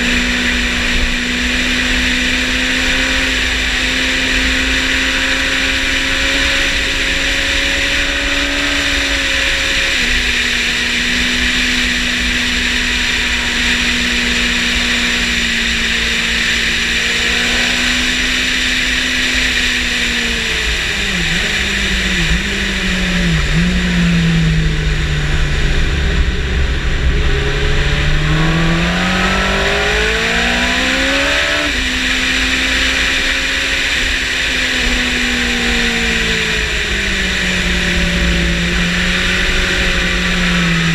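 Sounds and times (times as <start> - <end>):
motorcycle engine revving: 0.0 - 40.9
wind rush: 22.2 - 31.8.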